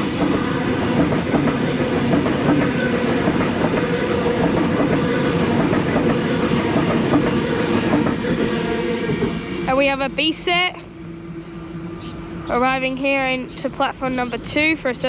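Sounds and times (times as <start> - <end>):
train wheels clicking over rail joints: 0.0 - 9.5
train motor hum: 0.0 - 15.0.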